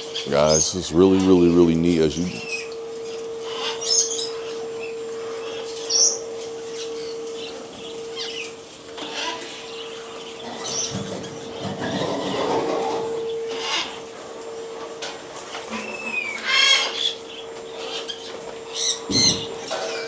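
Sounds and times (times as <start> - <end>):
pet birds chirping and squawking: 0.0 - 14.2, 15.6 - 20.0
steady hum: 0.0 - 20.0.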